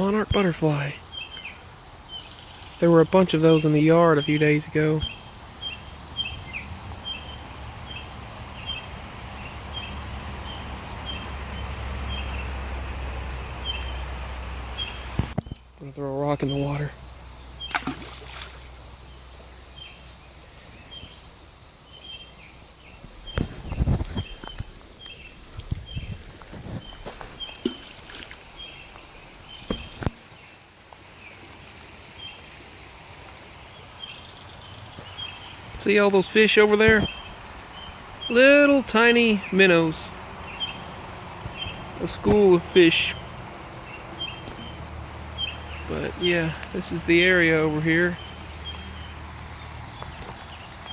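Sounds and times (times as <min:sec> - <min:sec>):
bird short high calls: 0:05.0 - 0:12.5
rocks plunking into water: 0:17.6 - 0:18.8, 0:25.4 - 0:29.0.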